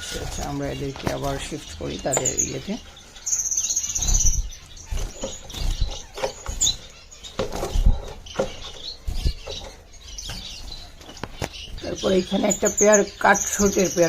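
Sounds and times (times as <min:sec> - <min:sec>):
finches chirping: 0:00.0 - 0:14.0.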